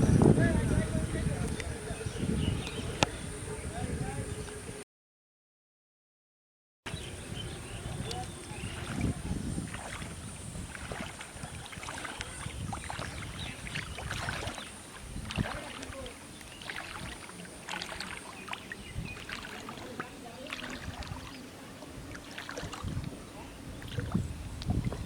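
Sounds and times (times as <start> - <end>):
small water splashes and drips: 7.9 - 23.2, 23.8 - 25.0.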